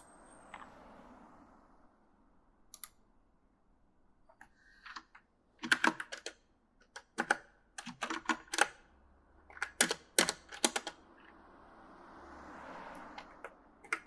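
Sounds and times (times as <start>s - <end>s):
mechanical keyboard typing: 4.8s - 8.9s, 9.5s - 11.0s, 13.2s - 14.0s.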